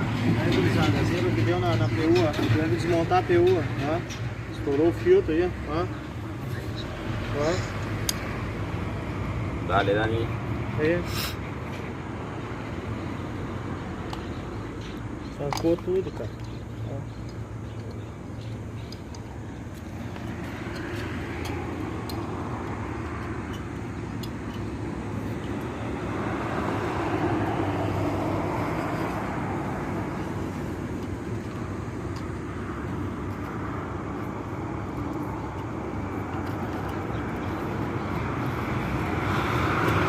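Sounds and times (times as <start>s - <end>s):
truck engine humming: 11.3s - 40.0s.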